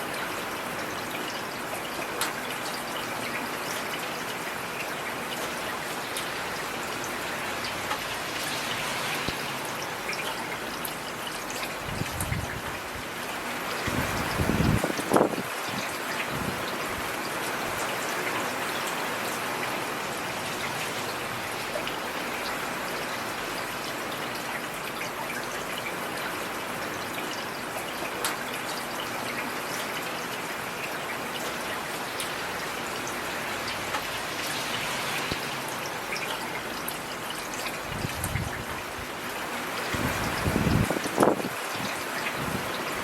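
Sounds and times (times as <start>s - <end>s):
heavy rain hiss: 5.9s - 10.7s, 32.0s - 43.0s.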